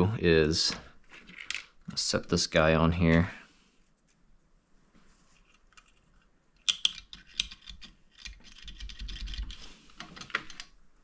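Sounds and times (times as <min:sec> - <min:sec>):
metal parts clicking: 0:06.6 - 0:10.7.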